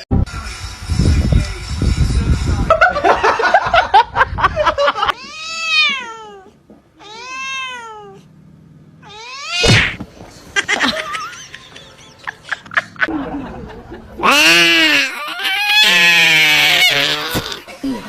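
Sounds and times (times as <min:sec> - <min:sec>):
cat meowing: 0:05.1 - 0:08.3, 0:09.0 - 0:09.8, 0:14.2 - 0:17.5.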